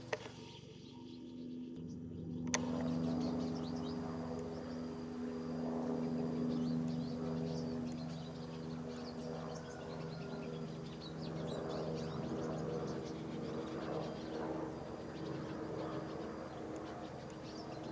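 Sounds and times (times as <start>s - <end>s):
helicopter engine and rotors: 0.0s - 17.9s
small birds chirping: 0.0s - 17.9s
sharp click: 2.4s - 2.9s.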